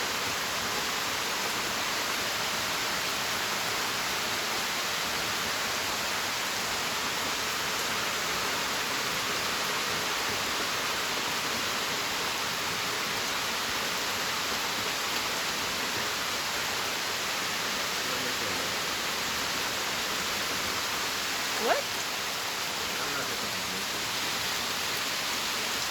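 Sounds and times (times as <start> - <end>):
rushing water hiss: 0.0 - 25.9.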